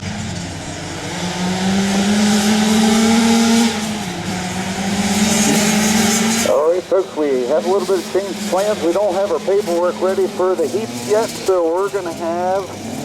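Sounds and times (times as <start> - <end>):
race engine revving: 0.0 - 13.0.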